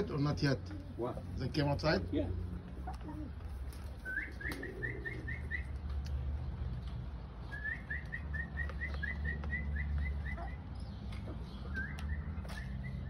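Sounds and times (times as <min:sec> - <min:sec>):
bird chirping: 0:03.8 - 0:13.0.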